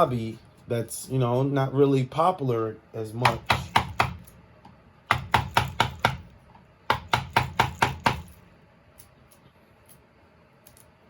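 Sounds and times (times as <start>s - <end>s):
carving tool chopping wood: 3.2s - 4.3s, 5.1s - 6.3s, 6.9s - 8.3s.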